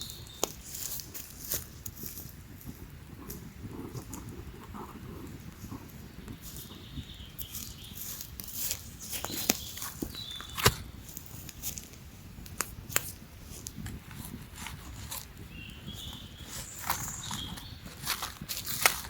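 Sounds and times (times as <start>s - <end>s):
rustling and scuffing: 0.0s - 19.0s.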